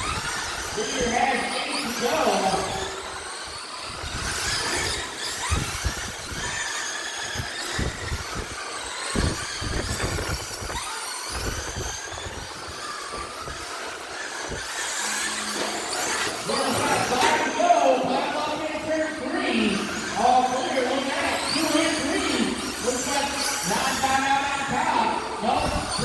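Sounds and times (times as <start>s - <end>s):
rc car motors whining: 0.0s - 26.0s.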